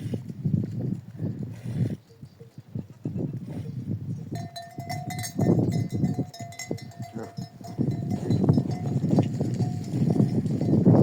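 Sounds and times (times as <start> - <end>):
goat bell ringing: 4.3 - 11.0
goat hooves knocking: 4.4 - 11.0.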